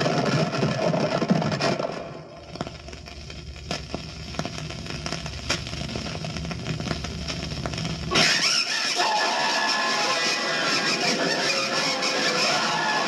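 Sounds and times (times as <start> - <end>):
crackles and pops: 0.0 - 13.0
sudden loud burst of noise: 5.2 - 13.0.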